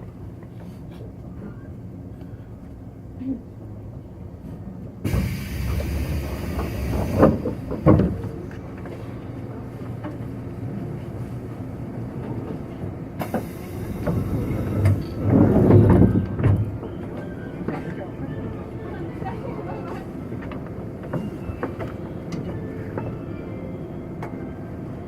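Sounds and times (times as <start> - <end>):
low train rumble: 0.0 - 25.0
air hiss: 5.1 - 7.5, 13.2 - 15.0.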